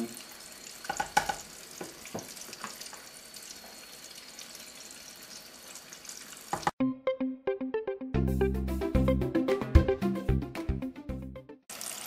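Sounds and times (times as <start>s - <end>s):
deep-frying sizzle: 0.0s - 6.8s, 11.7s - 12.0s.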